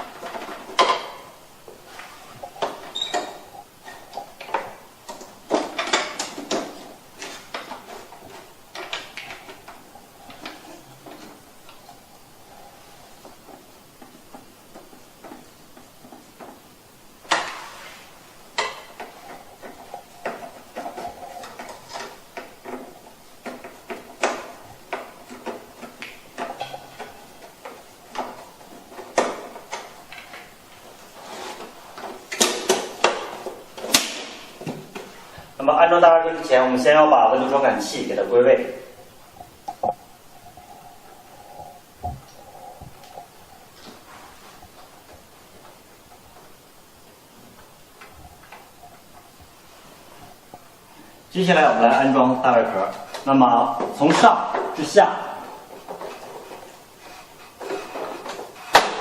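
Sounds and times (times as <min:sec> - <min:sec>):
plastic parts clicking and rattling: 0:00.0 - 0:01.8, 0:02.4 - 0:12.0, 0:18.6 - 0:35.1, 0:52.9 - 0:59.0.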